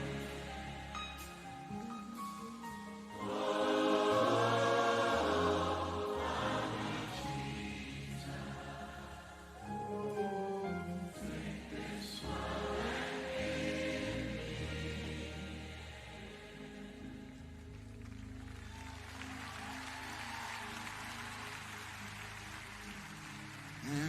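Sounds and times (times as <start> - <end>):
choir singing: 0.0 - 1.8, 3.0 - 17.6
bass and keyboard chords: 0.0 - 19.8.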